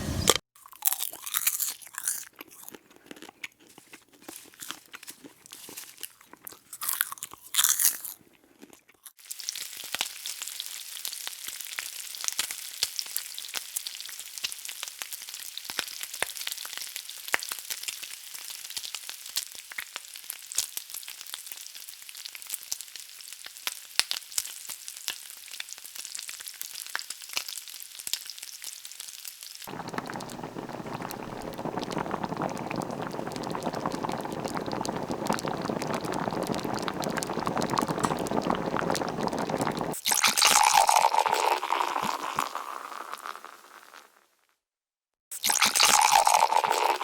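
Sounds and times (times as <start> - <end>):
food sizzling in a pan: 9.2 - 44.1, 45.4 - 47.0
rush of liquid: 29.7 - 42.3
liquid pouring into a glass: 29.7 - 43.4, 45.4 - 47.0.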